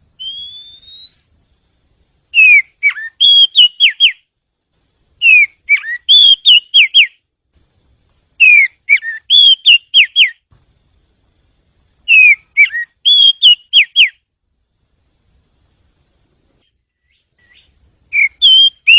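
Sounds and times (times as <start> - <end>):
bird singing downward whistles: 0.2 - 1.3, 2.3 - 4.3, 5.2 - 7.2, 8.4 - 10.5, 12.1 - 14.3, 16.6 - 18.9.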